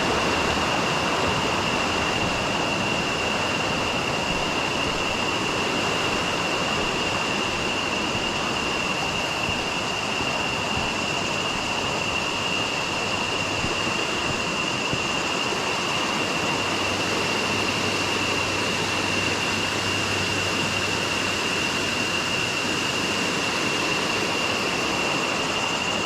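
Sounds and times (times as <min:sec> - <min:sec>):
constant high-pitched tone: 0:00.0 - 0:26.0.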